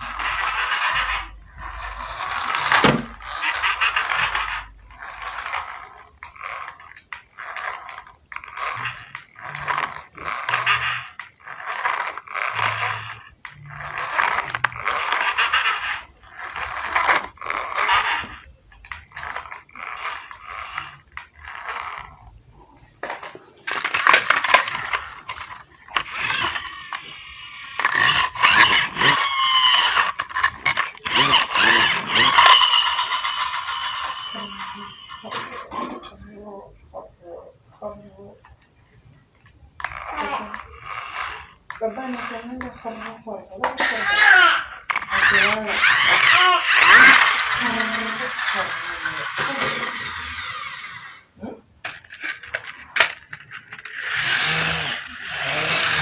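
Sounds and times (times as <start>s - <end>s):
toy car wheels rolling: 0.0s - 56.0s.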